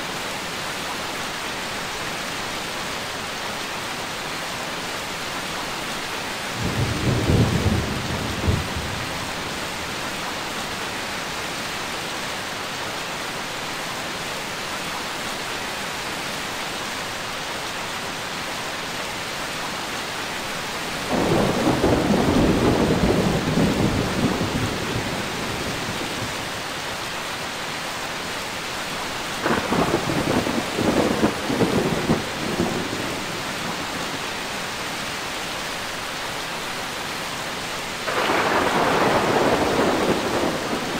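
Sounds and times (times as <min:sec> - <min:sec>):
steady rain: 0:00.0 - 0:40.9
thunder rumbling: 0:21.1 - 0:26.4, 0:29.4 - 0:34.0, 0:38.1 - 0:40.9.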